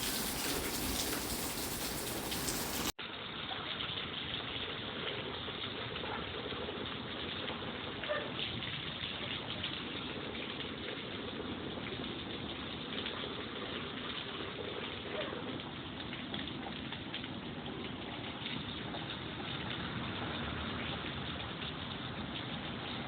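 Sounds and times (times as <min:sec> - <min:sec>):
heavy rain hissing: 0:00.0 - 0:03.0.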